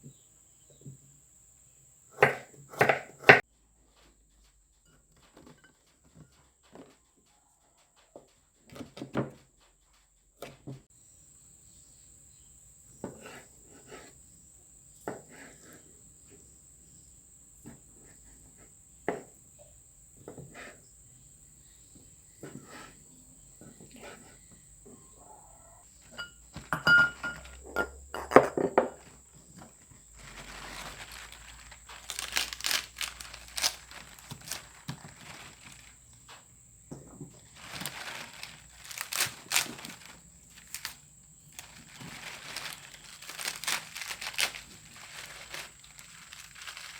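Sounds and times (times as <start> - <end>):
crinkly rustling: 28.6 - 46.9.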